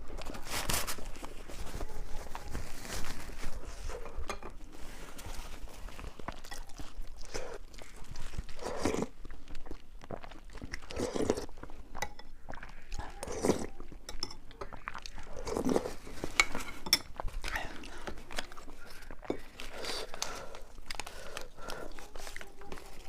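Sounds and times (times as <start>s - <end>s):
person chewing and crunching food: 0.0s - 23.0s
soft mouth sounds: 6.3s - 16.1s.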